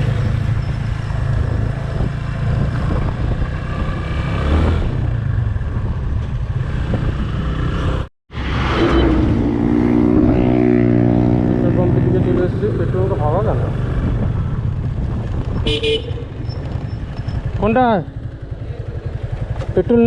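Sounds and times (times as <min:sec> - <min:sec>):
wind and road noise: 0:00.0 - 0:20.0
motorcycle engine running: 0:08.9 - 0:20.0.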